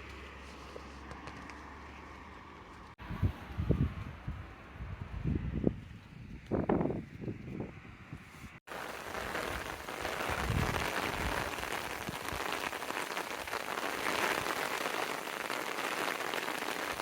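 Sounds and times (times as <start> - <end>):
heavy rain hitting surfaces: 8.7 - 17.0.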